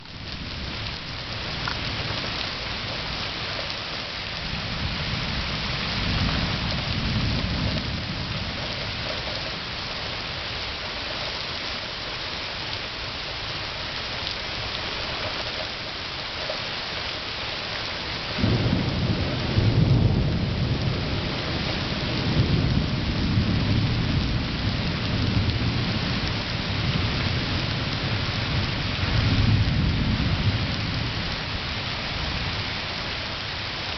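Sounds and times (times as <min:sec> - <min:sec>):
rain falling: 0:00.0 - 0:33.9
rolling thunder: 0:04.3 - 0:10.3, 0:18.3 - 0:32.6
loud thunderclap: 0:18.3 - 0:26.4.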